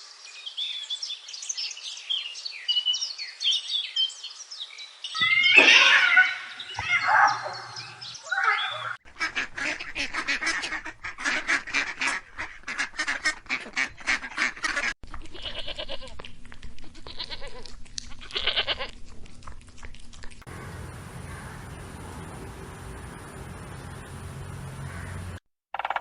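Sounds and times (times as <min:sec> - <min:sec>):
waterfowl calling: 0:05.2 - 0:15.0, 0:20.5 - 0:25.4.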